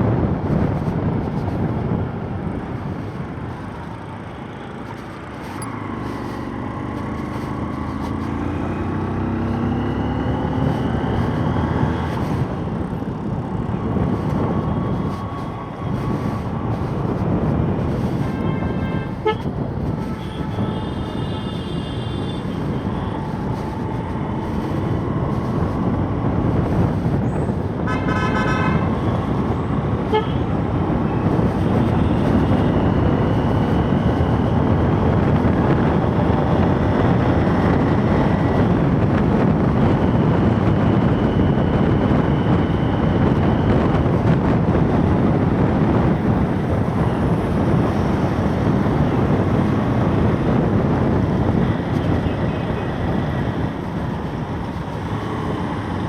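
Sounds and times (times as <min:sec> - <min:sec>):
wind and road noise: 0:00.0 - 0:56.0
vehicle horn honking: 0:18.2 - 0:22.6, 0:27.8 - 0:29.0, 0:30.0 - 0:30.5.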